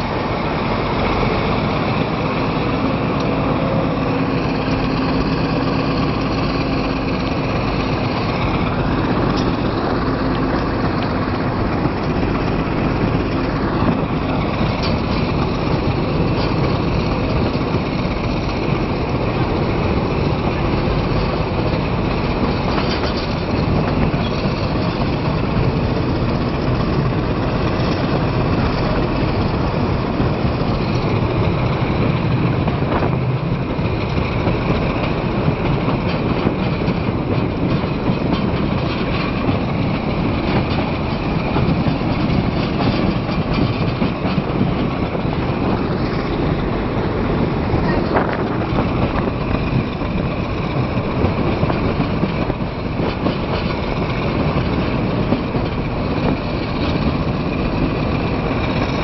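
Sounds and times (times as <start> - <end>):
diesel engine: 0.0 - 59.0
train wheels rumbling: 0.0 - 59.0.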